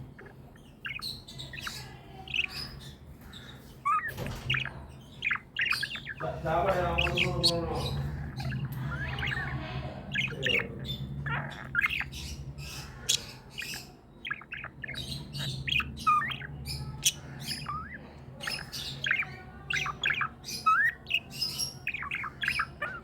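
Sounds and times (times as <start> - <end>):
budgerigars chirping and squawking: 0.0 - 23.0
steady low hum: 4.7 - 23.0.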